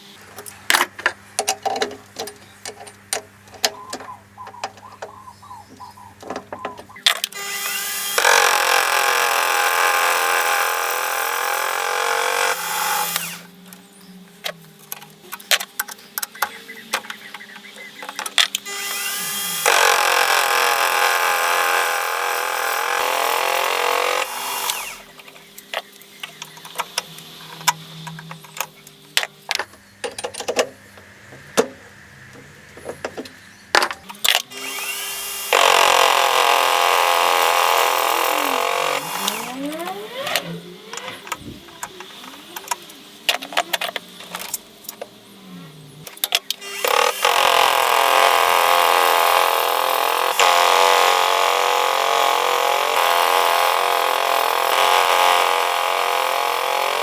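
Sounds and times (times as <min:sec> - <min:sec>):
lathe humming: 0:05.1 - 0:13.7, 0:16.4 - 0:25.3, 0:34.5 - 0:43.2, 0:46.6 - 0:57.0
lathe cutting metal: 0:07.4 - 0:13.5, 0:18.7 - 0:25.1, 0:34.3 - 0:43.1, 0:46.6 - 0:57.0.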